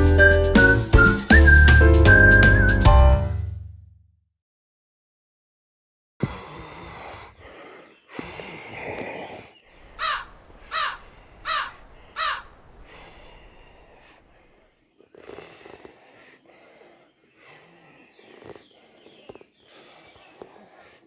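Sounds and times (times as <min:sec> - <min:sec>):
rustling outdoor noise: 0:07.1 - 0:21.0
bird harsh falling calls: 0:07.6 - 0:14.6.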